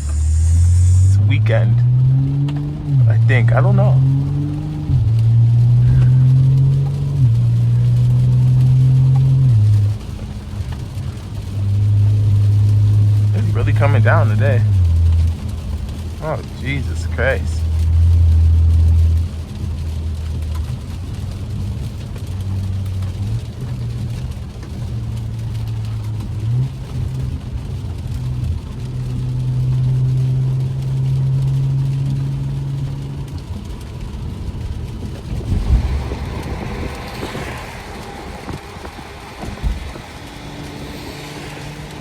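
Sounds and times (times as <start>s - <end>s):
brief hiss: 0.0s - 1.2s
car engine revving: 0.0s - 42.0s.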